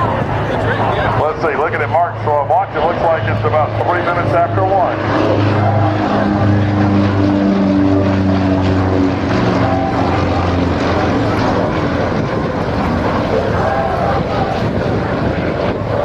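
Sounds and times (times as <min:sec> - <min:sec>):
propeller plane engine droning: 0:00.0 - 0:16.0.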